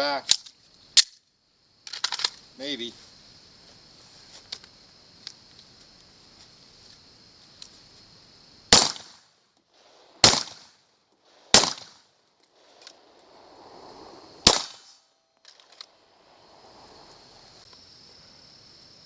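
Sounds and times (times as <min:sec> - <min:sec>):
suppressed gunshots: 0:08.7 - 0:09.2, 0:10.2 - 0:10.7, 0:11.5 - 0:12.0, 0:14.4 - 0:14.9.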